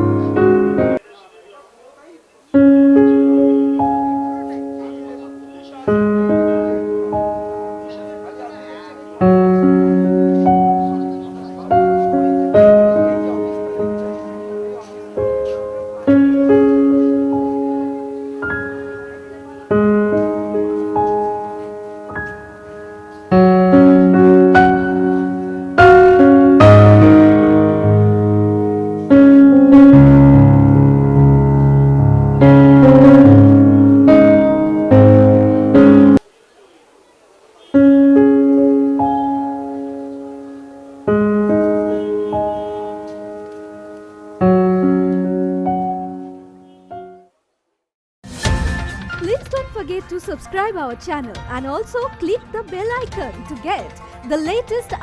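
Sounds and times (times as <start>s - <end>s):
piano chords ringing: 0.0s - 1.0s, 2.5s - 36.4s, 37.6s - 47.3s.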